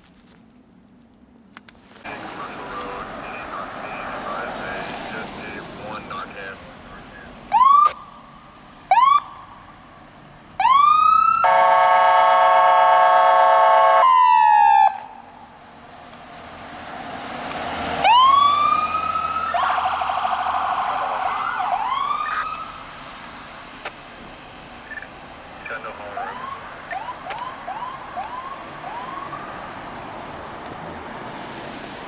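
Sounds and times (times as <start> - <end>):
emergency vehicle siren: 2.1 - 32.0
horn blast: 11.4 - 14.9.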